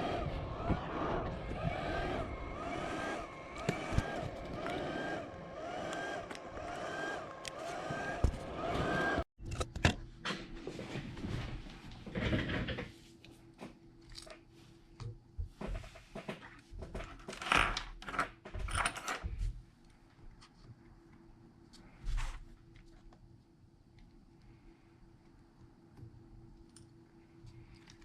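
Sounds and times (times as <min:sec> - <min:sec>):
faint steady hum: 0:19.2 - 0:28.0.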